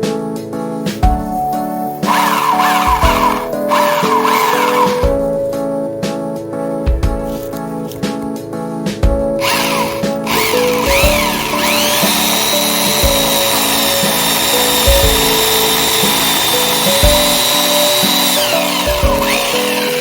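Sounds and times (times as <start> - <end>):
background music: 0.0 - 20.0
electric chainsaw motor whining: 2.0 - 5.1, 9.4 - 20.0.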